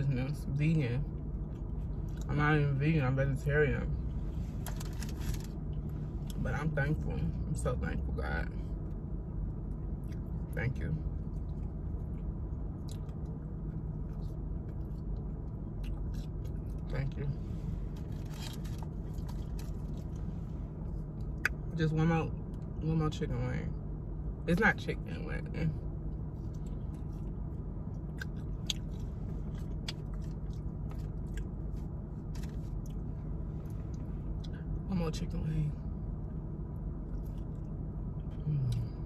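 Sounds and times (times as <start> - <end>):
low car cabin hum: 0.0 - 39.0
person chewing with crunches: 9.6 - 10.6, 11.2 - 17.0, 17.6 - 21.7, 26.1 - 34.8.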